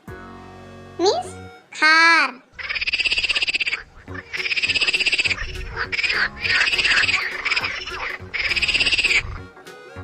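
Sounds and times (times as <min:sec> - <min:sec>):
squirrel chattering: 0:02.5 - 0:09.6.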